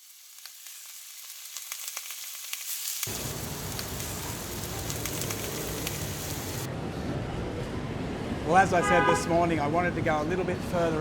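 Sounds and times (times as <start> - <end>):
food sizzling on a pan: 0.0 - 6.7.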